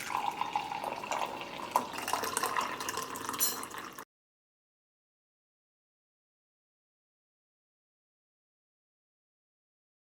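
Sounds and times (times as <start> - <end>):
water dripping: 0.0 - 4.0.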